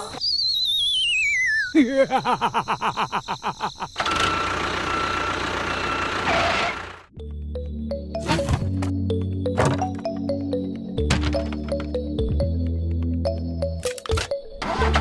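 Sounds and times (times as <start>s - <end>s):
cartoon whistle sliding down: 0.0s - 1.8s
music: 7.1s - 15.0s.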